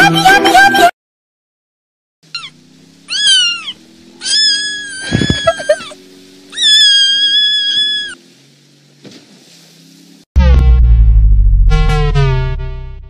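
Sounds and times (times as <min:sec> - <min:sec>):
cat meowing: 0:02.3 - 0:08.2
short low rumble: 0:10.4 - 0:13.0.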